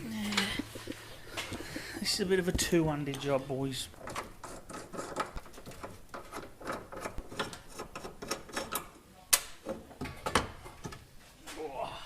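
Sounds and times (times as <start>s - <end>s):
metallic clicks and knocks: 4.0s - 11.0s.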